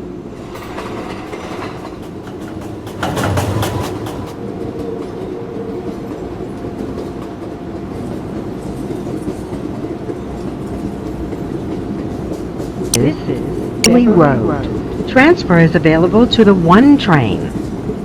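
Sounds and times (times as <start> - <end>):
subway car rumble: 0.0 - 18.0
wheel clicks over rails: 0.6 - 4.4.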